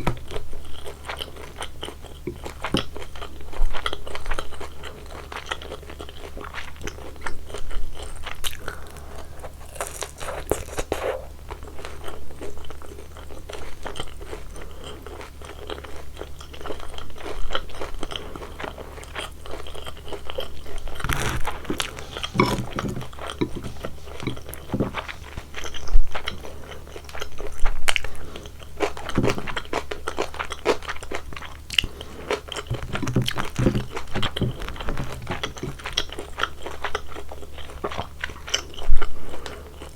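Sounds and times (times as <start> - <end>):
chewing crispy food: 0.0 - 39.9
crunching bites: 20.9 - 25.5.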